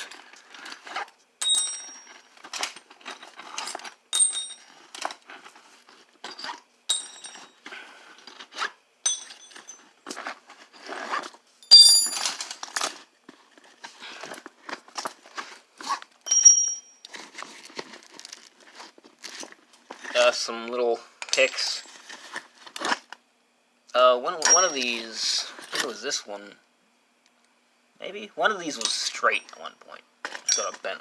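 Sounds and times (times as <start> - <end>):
steel punches clinking: 4.1 - 4.6, 6.9 - 7.5, 9.1 - 9.8, 11.6 - 12.4, 30.4 - 30.9.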